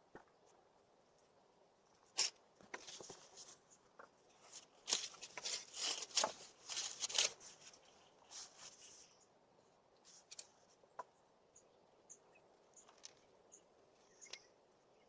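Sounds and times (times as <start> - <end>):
rustling and crunching: 2.1 - 9.1.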